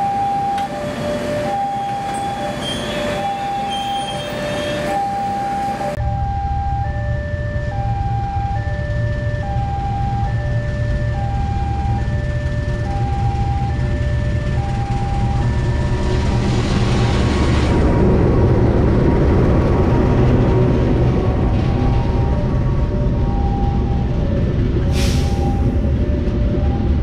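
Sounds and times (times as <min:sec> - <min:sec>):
train coaches rolling past: 0:00.0 - 0:06.0, 0:09.0 - 0:27.0
level crossing two-tone alarm: 0:00.0 - 0:16.6, 0:22.3 - 0:27.0
locomotive engine rumble: 0:00.0 - 0:27.0.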